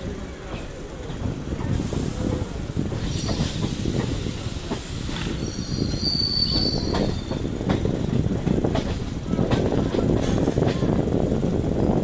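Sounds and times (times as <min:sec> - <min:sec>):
train wheels rumbling: 0:00.0 - 0:12.0
high-pitched wheel squeal: 0:05.4 - 0:07.4.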